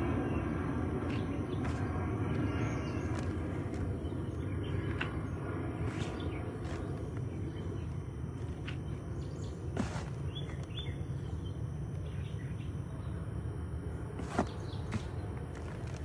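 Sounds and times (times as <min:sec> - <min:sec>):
bird chirps: 0:00.1 - 0:13.2
hands digging in soil: 0:09.7 - 0:10.7.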